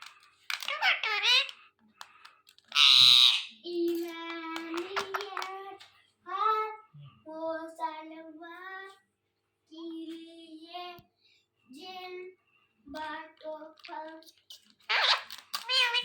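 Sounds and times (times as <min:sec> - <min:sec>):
parrot talking: 0:00.5 - 0:01.6, 0:02.7 - 0:03.7, 0:04.6 - 0:05.5, 0:14.6 - 0:16.0.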